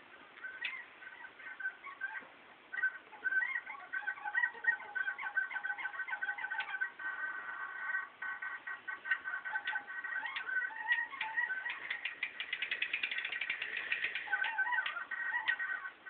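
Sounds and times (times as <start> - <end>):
bicycle drivetrain squeaking: 11.0 - 14.7.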